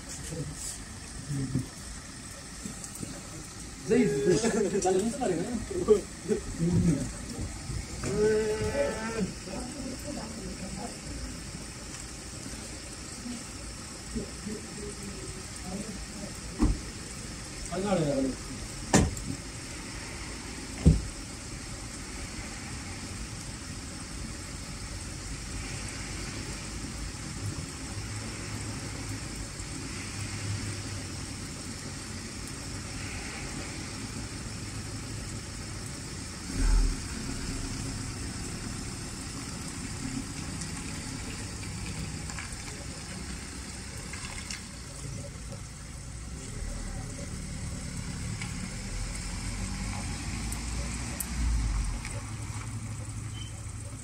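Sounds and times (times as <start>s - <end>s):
rain falling on road: 0.0s - 54.0s
dull thump: 18.9s - 19.2s, 20.8s - 21.1s
car engine idling: 34.4s - 50.2s
car pulling away: 36.4s - 45.2s, 46.4s - 53.9s.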